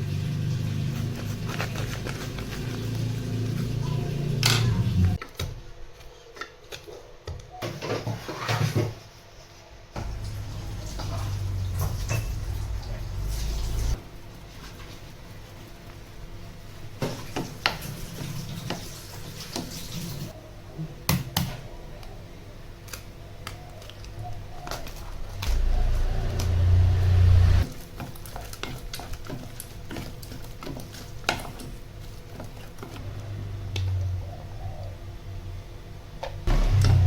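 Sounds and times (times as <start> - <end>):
low rumble: 10.0 - 14.0, 25.2 - 27.6.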